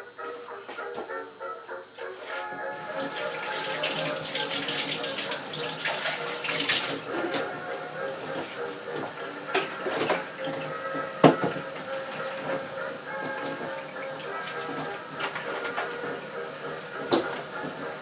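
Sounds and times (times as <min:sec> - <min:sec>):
water splashing: 0:02.8 - 0:18.0.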